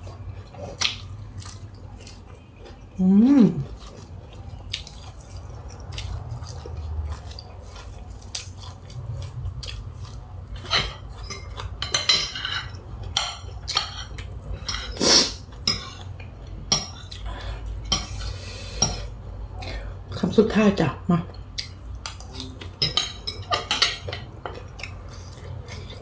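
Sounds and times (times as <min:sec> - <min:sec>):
cutlery clinking on a plate: 0:10.6 - 0:15.0, 0:15.6 - 0:16.0, 0:22.6 - 0:24.7.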